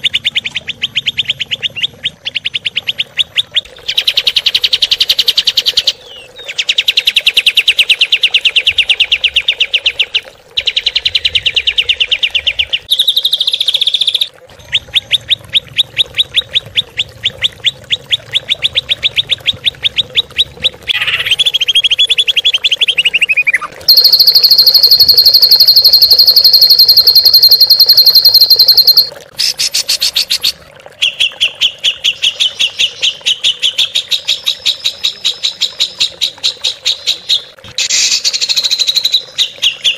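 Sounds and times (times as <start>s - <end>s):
songbird trills and chirps: 22.8s - 29.1s
high buzzing bird note: 23.9s - 29.1s.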